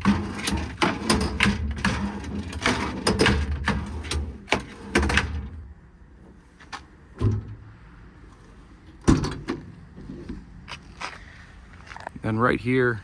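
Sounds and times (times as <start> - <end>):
tool drawers knocking and clunking: 0.0 - 5.7, 7.2 - 7.7, 9.0 - 10.4.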